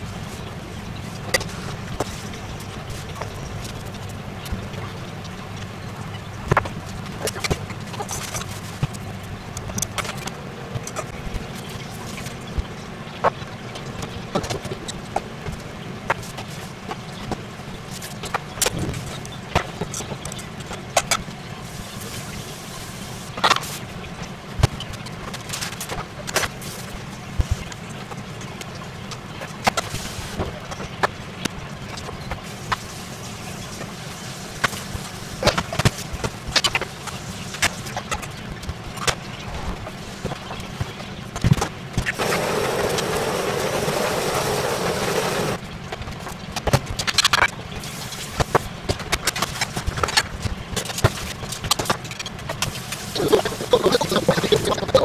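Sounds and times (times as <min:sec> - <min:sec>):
rush of noise: 0:42.0 - 0:45.7, 0:52.7 - 0:55.0.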